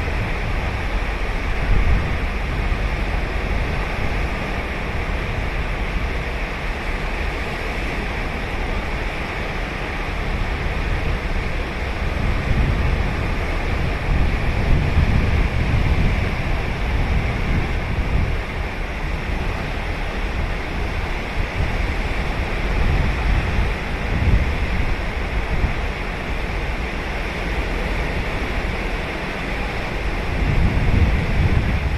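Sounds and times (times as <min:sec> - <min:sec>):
ocean surf washing on beach: 0:00.0 - 0:31.9
wind rumble on microphone: 0:00.0 - 0:31.9.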